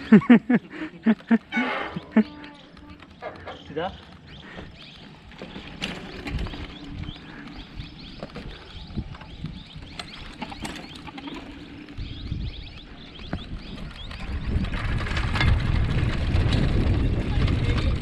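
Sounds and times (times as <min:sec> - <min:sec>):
birds chirping: 0:00.0 - 0:18.0
low rumble: 0:11.5 - 0:18.0.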